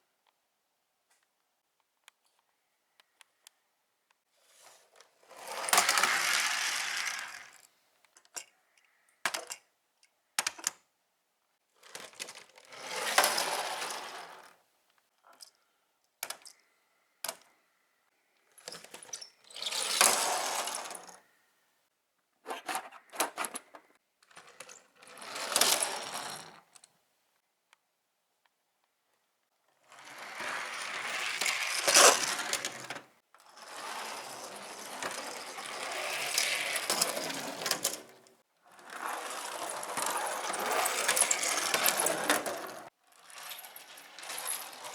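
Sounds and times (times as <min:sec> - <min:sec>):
toy cars rolling down plastic slide: 0:04.5 - 0:07.7, 0:11.8 - 0:14.6, 0:18.6 - 0:21.2, 0:22.5 - 0:26.9, 0:29.8 - 0:44.9
toys clicking and clattering: 0:04.9 - 0:10.8, 0:16.2 - 0:16.6, 0:18.6 - 0:21.2, 0:29.9 - 0:33.1, 0:33.7 - 0:44.9.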